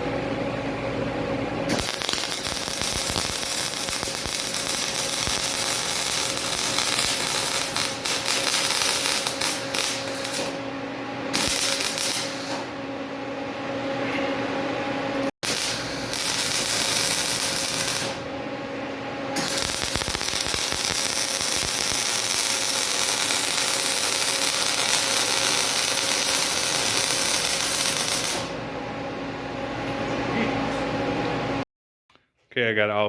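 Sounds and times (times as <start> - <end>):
welding arc crackling: 1.7 - 10.6, 11.3 - 12.7, 15.4 - 18.3, 19.4 - 28.6.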